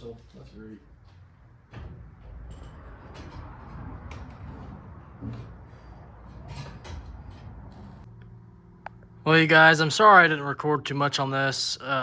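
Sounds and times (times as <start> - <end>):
metal bicycle parts clicking: 1.8 - 8.1.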